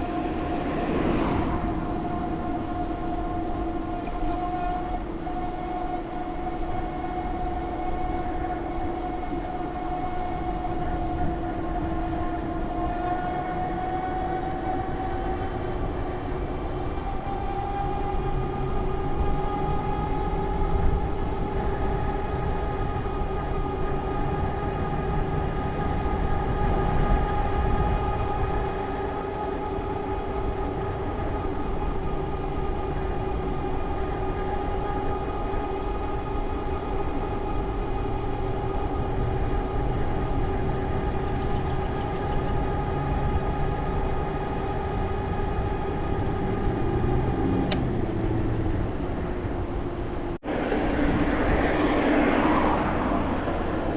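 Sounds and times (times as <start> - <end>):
wind rumble on microphone: 0.0 - 53.9.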